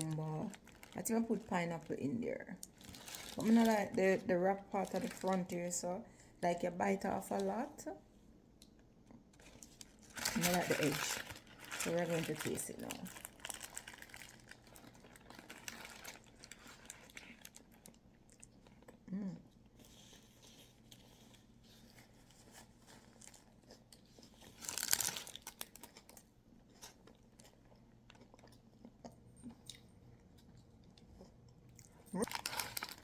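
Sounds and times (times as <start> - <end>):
person chewing crunchy food: 13.0 - 33.0.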